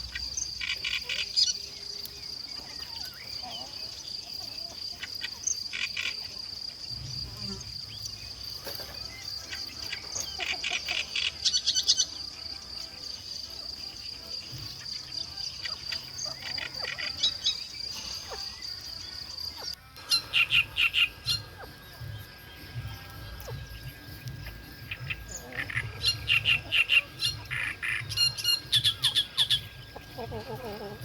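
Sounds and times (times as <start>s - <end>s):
insect trilling: 0.0s - 31.0s
bird chirps and calls: 14.6s - 31.0s.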